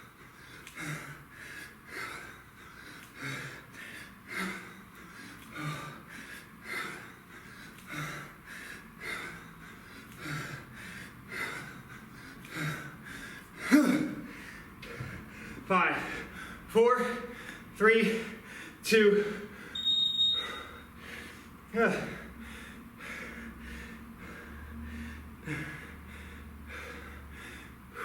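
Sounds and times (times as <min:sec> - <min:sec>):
man breathing hard: 0:00.0 - 0:19.8, 0:20.4 - 0:28.0
man grunting: 0:13.7 - 0:14.3, 0:21.8 - 0:22.2.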